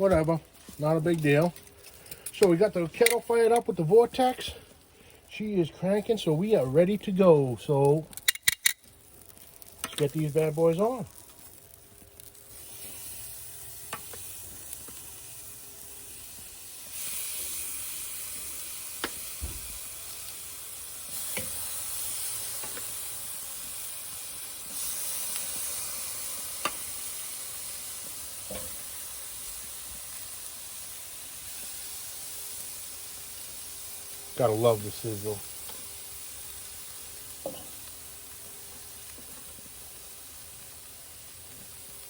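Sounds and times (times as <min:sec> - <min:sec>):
meat sizzling on a grill: 0:00.0 - 0:42.0
clicks and taps on grill grate: 0:00.1 - 0:03.7, 0:07.9 - 0:10.3, 0:13.9 - 0:15.0, 0:18.4 - 0:19.7, 0:21.1 - 0:21.7, 0:22.5 - 0:23.0, 0:25.2 - 0:27.0, 0:28.0 - 0:28.8, 0:37.3 - 0:38.0.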